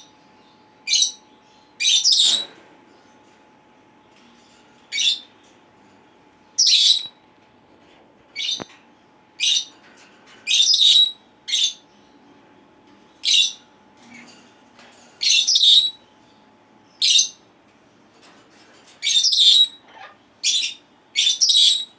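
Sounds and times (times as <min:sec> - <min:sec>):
parrots harsh screeching calls: 0:19.0 - 0:21.8.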